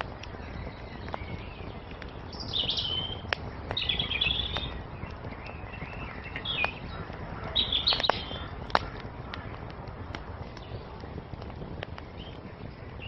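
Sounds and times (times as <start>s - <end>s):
songbirds chirping: 0.0s - 13.0s
wood fire hissing and crackling: 0.0s - 13.0s.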